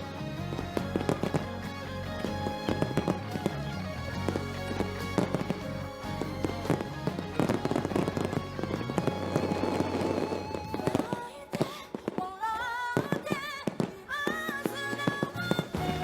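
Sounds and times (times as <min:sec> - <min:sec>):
sung notes with vibrato: 0:00.0 - 0:11.3
fireworks bursting and crackling: 0:00.0 - 0:16.0
music: 0:00.0 - 0:16.0.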